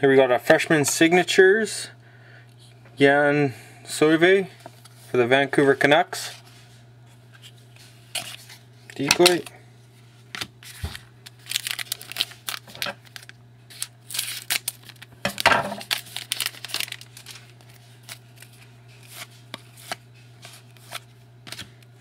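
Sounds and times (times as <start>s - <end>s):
low electrical hum: 0.0s - 22.0s
card packaging crinkling: 7.4s - 9.5s, 10.4s - 22.0s
cards sliding: 15.9s - 21.8s.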